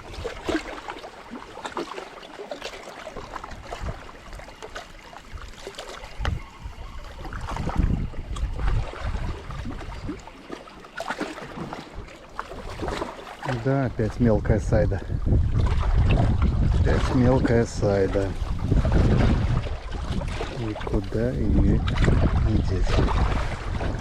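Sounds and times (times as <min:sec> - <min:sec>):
wind on microphone: 0:00.0 - 0:00.8, 0:03.2 - 0:10.4, 0:11.6 - 0:24.0
water sloshing around boat: 0:00.0 - 0:24.0.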